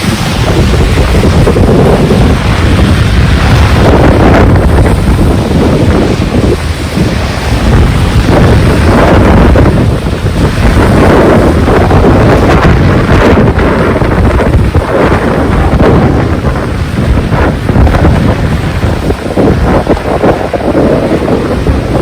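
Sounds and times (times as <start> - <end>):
heavy rain: 0.0 - 22.0
strong wind buffeting microphone: 0.0 - 22.0.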